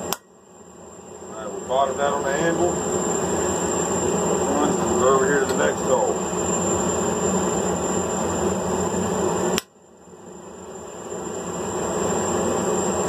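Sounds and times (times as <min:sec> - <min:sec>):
machinery rushing hum: 0:00.0 - 0:13.0
thin high whine: 0:00.0 - 0:13.0
sharp click: 0:00.1 - 0:00.3.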